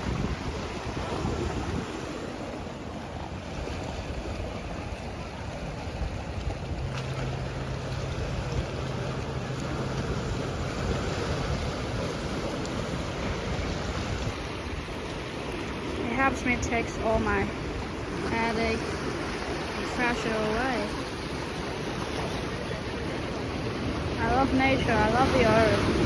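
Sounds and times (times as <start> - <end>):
sea waves washing on shore: 0.0 - 26.0
wind buffeting microphone: 0.0 - 26.0
low steady hum: 2.4 - 26.0.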